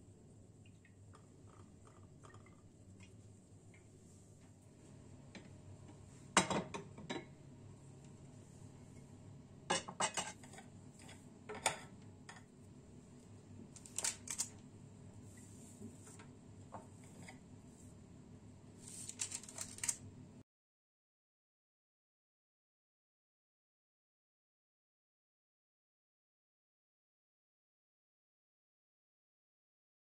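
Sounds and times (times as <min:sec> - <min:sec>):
room hum: 0:00.0 - 0:20.4
dishes and utensils clinking: 0:09.7 - 0:12.5.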